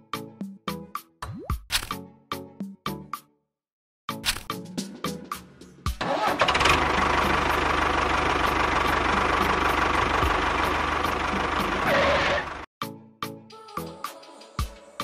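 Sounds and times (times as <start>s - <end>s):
small engine running: 6.0s - 12.7s.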